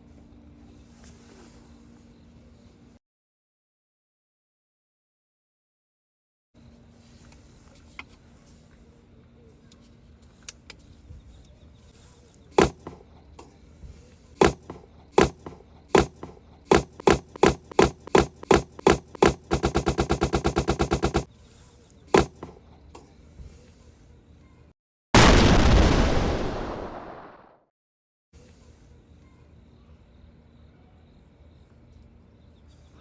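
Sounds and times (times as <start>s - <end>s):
sharp knocks: 14.4s - 21.3s.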